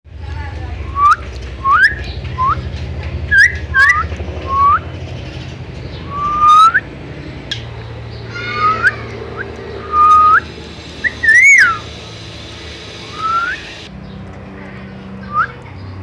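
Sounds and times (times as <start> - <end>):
steady low hum: 0.1 - 16.0
bird whistling: 0.8 - 2.7, 3.3 - 4.9, 5.9 - 6.9, 7.5 - 13.9, 15.2 - 15.6.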